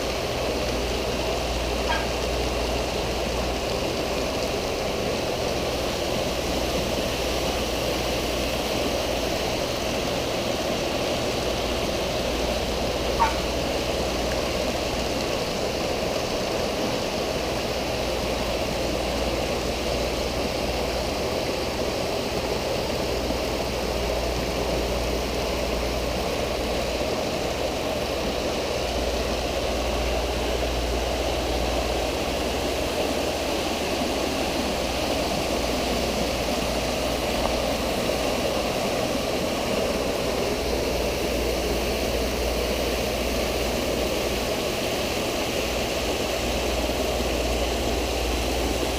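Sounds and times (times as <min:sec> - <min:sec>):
water splashing from fountains: 0:00.0 - 0:48.9.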